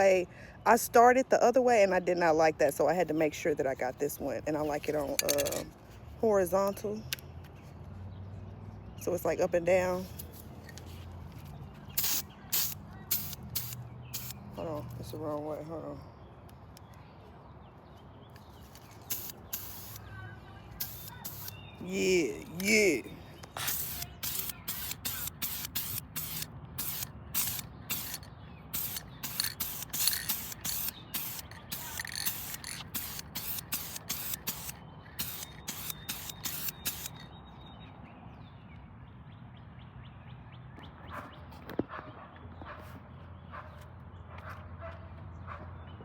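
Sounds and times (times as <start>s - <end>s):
spray can hissing: 12.0s - 14.4s, 19.0s - 20.0s, 20.8s - 22.9s, 23.5s - 37.2s.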